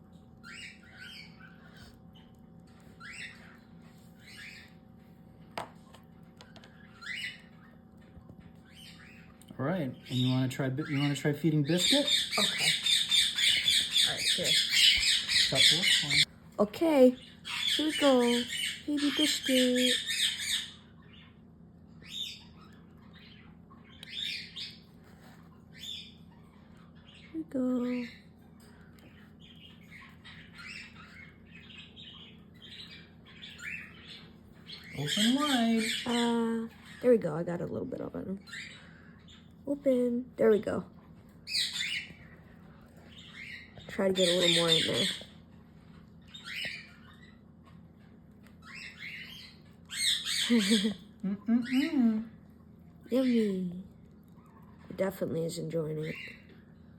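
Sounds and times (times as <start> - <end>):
bird chicks chirping: 0.0 - 56.9
chicks raspy begging squawks: 11.6 - 16.3, 48.6 - 51.9.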